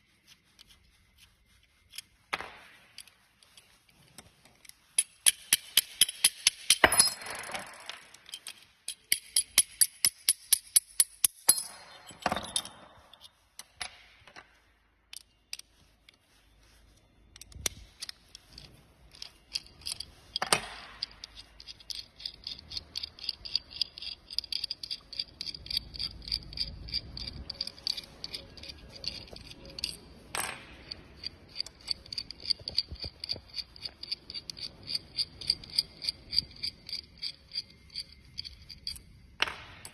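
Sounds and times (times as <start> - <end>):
ratchet tool ticking: 17.6 - 30.0, 30.8 - 39.0.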